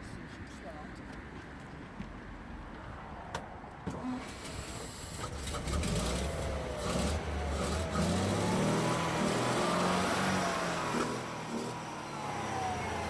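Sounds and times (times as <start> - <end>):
petrol engine rumbling: 4.0 - 13.0.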